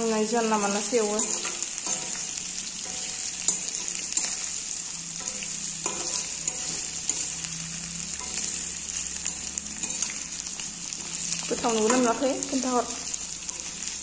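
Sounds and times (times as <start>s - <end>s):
meat sizzling in oil: 0.0s - 14.0s
spatula clicking and scraping: 1.2s - 12.2s.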